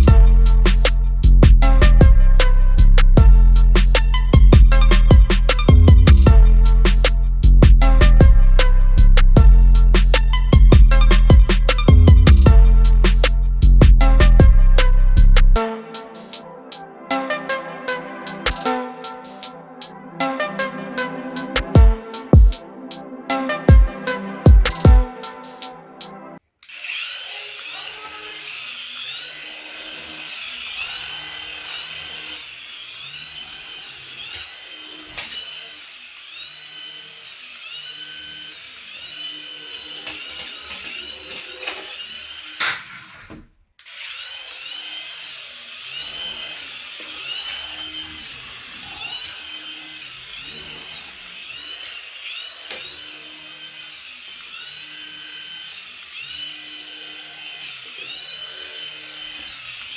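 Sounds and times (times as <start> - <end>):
toy electric motor whining: 2.4 - 7.6, 8.6 - 16.4, 17.9 - 19.9, 26.6 - 59.9.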